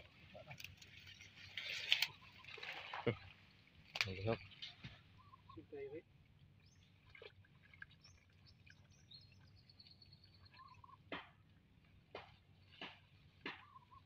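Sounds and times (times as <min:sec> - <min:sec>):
faint bird chirps: 0:04.3 - 0:06.0, 0:08.0 - 0:11.1, 0:13.6 - 0:14.0.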